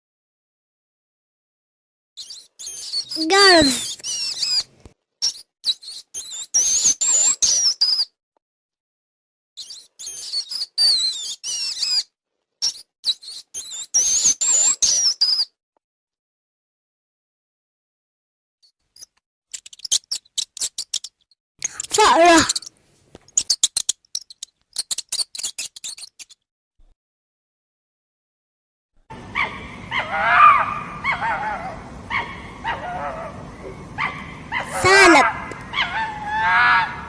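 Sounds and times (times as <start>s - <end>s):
rat squeaking: 2.2s - 8.1s, 9.6s - 15.5s, 19.0s - 26.4s, 34.0s - 35.9s.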